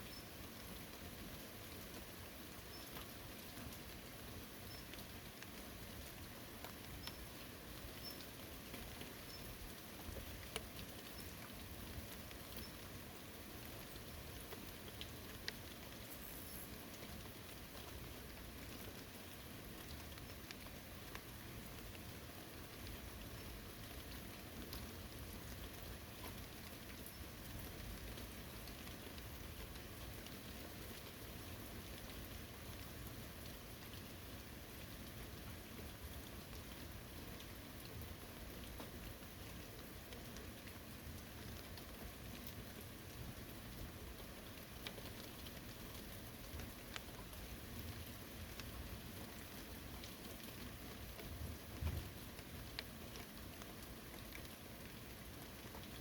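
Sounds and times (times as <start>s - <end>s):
steady rain: 0.0s - 56.0s
drip ticks: 4.6s - 12.9s, 13.7s - 16.3s, 19.8s - 22.0s, 43.7s - 54.6s.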